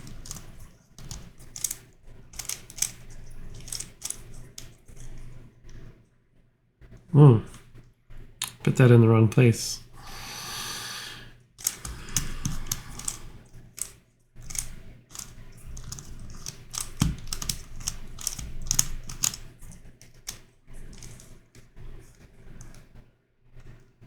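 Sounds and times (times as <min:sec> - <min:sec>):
puzzle cube pieces clicking: 0:02.4 - 0:04.2, 0:11.6 - 0:13.2, 0:13.8 - 0:19.4.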